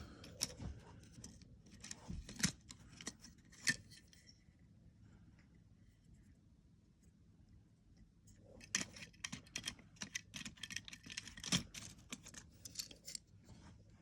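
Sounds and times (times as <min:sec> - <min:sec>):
toy cars clicking together: 0:08.6 - 0:13.2.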